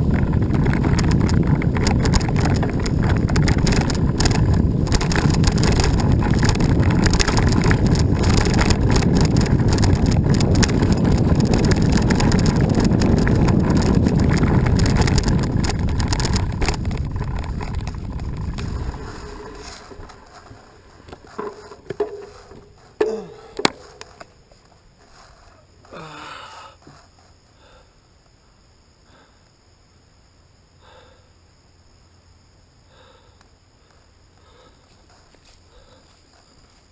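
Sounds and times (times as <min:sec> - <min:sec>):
wind rumbling on microphone: 0:00.0 - 0:25.8
bike rattling over trail: 0:00.0 - 0:26.0.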